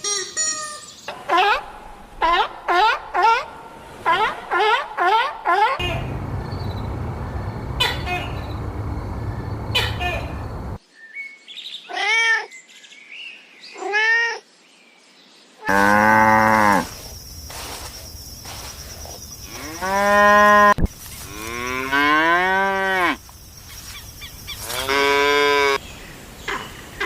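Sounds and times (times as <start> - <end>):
cow mooing: 15.7 - 16.9.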